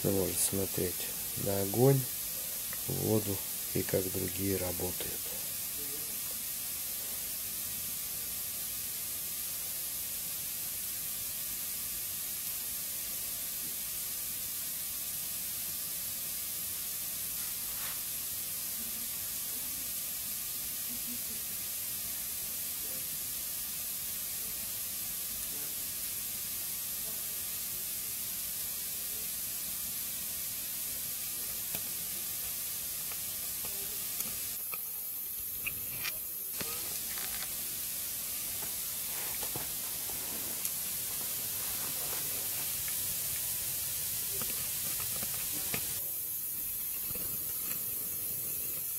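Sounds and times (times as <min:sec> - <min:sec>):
wood fire hissing: 0:00.0 - 0:48.9
fire crackles and pops: 0:00.3 - 0:15.4, 0:28.6 - 0:48.9.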